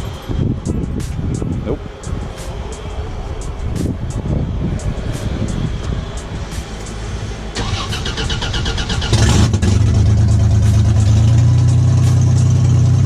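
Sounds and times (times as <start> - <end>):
engine cranking on starter: 7.6 - 11.4.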